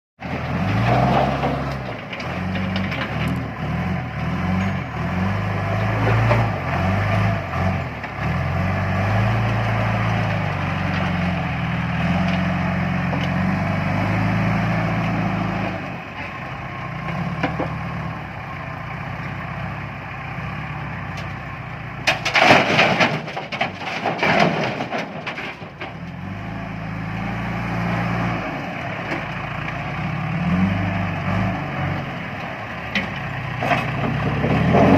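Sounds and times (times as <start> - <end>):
diesel engine revving: 0.2 - 34.9
rocks crashing: 0.3 - 3.5, 22.0 - 26.2, 33.0 - 34.9.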